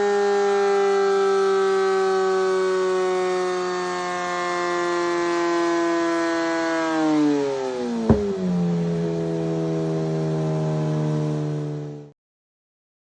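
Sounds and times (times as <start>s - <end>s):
exhaust crack: 8.1s - 9.2s.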